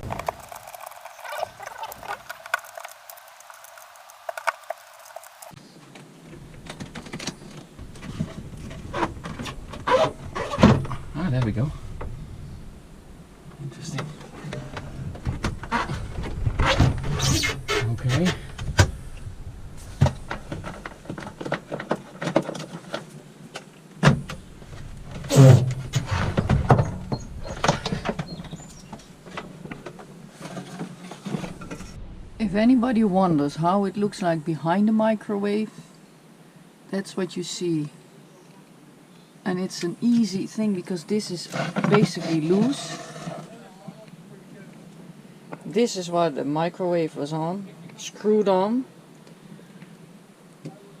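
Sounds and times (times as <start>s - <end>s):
dull rumble: 6.3s - 21.8s, 24.2s - 30.4s, 31.3s - 33.7s.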